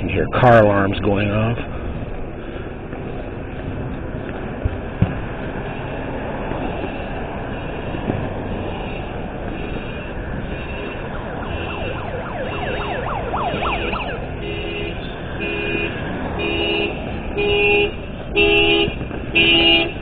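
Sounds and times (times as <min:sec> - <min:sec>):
steady rushing noise: 0:00.0 - 0:17.4
car alarm siren sweeps: 0:02.9 - 0:17.8
car horn blaring: 0:06.7 - 0:20.0.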